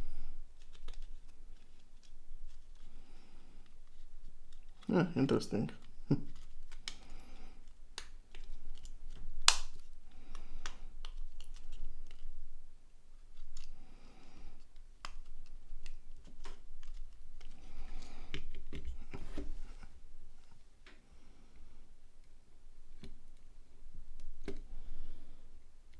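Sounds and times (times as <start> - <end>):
plastic snap: 8.0 - 9.8.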